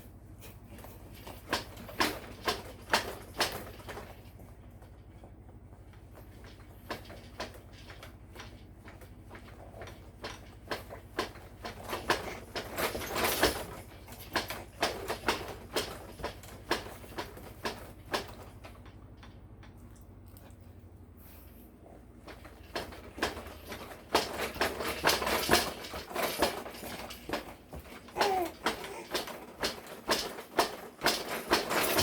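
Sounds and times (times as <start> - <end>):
baby jumper knocking and rattling: 0.8 - 19.4, 22.2 - 32.0.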